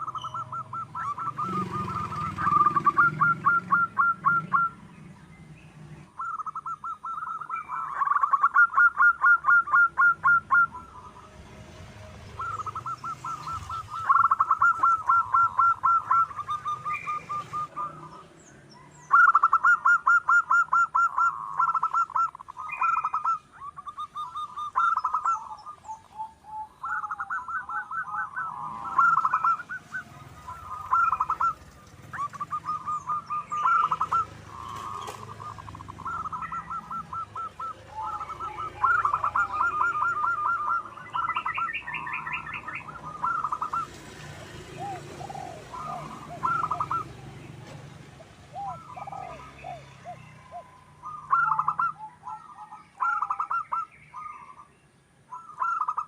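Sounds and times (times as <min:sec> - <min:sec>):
dove cooing: 0:00.0 - 0:05.2, 0:06.1 - 0:54.7, 0:55.3 - 0:56.0
faint high bird chirps: 0:00.0 - 0:11.4, 0:12.3 - 0:44.0.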